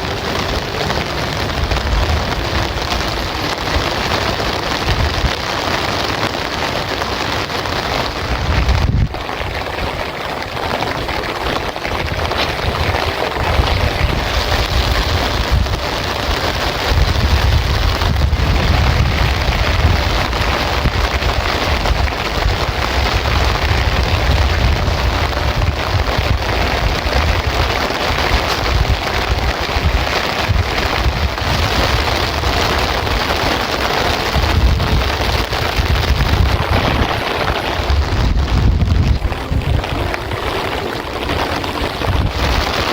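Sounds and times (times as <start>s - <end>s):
heavy rain: 0.0s - 42.9s
low rumble: 34.3s - 42.8s.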